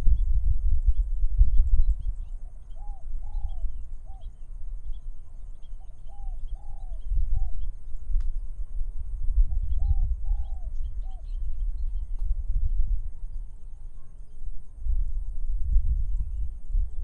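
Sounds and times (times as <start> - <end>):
wind rumble on microphone: 0.0 - 17.0
small birds chirping: 1.0 - 8.3, 9.4 - 14.5
dove cooing: 2.4 - 4.3, 5.2 - 7.7, 9.5 - 11.4.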